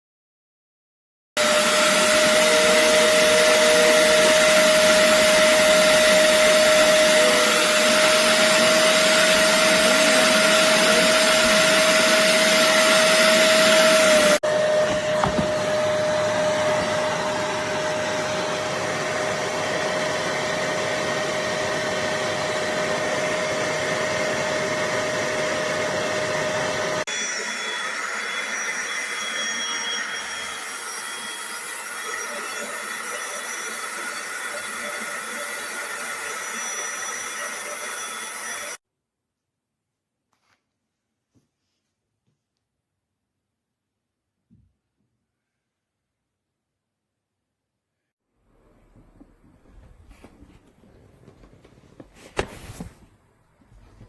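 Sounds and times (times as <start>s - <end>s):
carpet cleaner motor whine: 1.4s - 38.8s.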